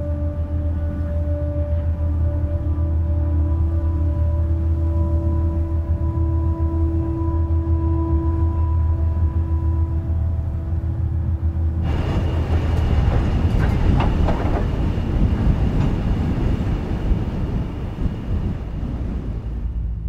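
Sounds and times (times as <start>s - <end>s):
low steady drone: 0.0s - 20.0s
freight wagons rumbling and rattling: 11.8s - 20.0s.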